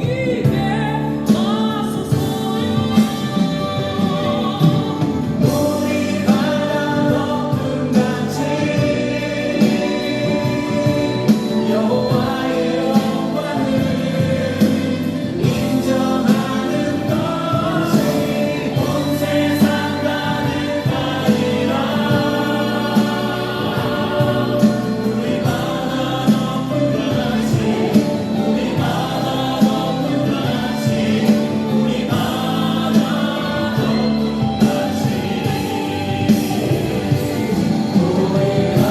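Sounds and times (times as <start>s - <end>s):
choir singing worship song: 0.0s - 38.9s
instrumental backing with beat: 0.0s - 38.9s.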